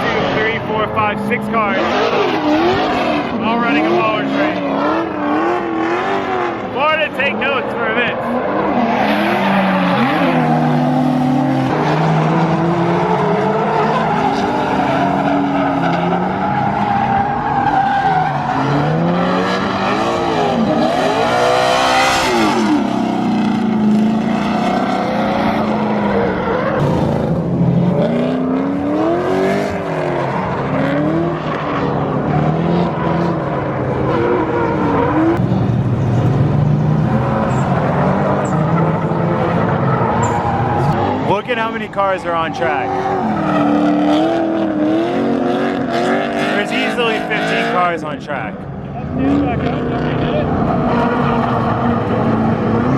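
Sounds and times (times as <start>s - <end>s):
car engines revving: 0.0s - 52.9s
tyre squeal: 39.8s - 41.0s.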